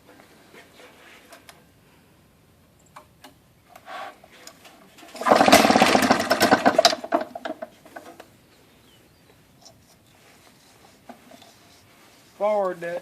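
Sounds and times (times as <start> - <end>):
two-stroke boat motor popping: 5.0 - 8.3.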